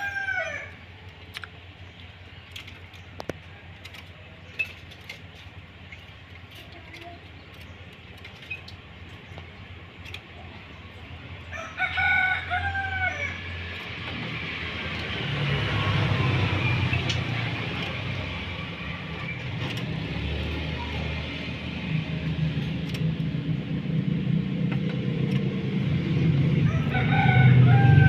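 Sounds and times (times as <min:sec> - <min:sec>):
rooster crowing: 0:00.0 - 0:00.8, 0:11.5 - 0:13.5, 0:26.6 - 0:28.0.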